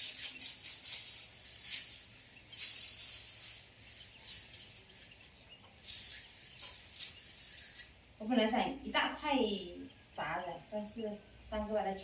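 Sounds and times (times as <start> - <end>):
pork skin sizzling and crackling: 0.0 - 4.9.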